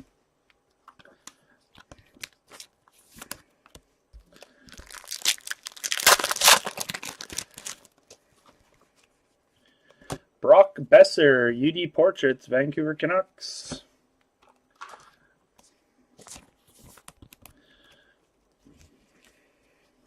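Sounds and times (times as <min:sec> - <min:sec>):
foil wrapper tearing and crinkling: 0:04.7 - 0:07.9.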